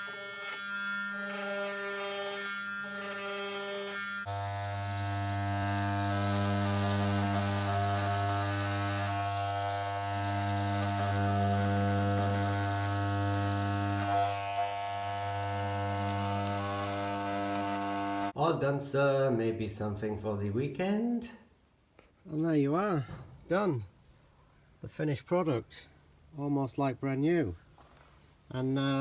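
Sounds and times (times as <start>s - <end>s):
electric hair clippers buzzing: 0.0s - 18.4s.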